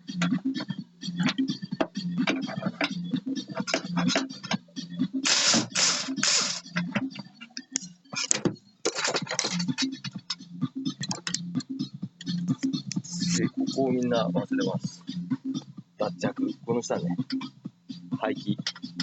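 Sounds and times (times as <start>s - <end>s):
hand tools and metal clattering: 2.2s - 4.6s, 5.2s - 7.3s, 8.2s - 10.4s
short hissing bursts: 5.2s - 6.6s.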